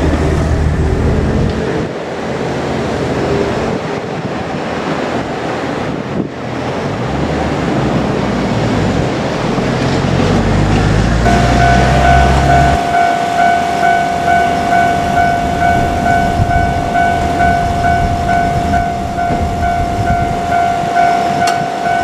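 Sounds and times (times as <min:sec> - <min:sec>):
train rumbling past: 0:00.0 - 0:22.0
steady horn tone: 0:11.0 - 0:22.0.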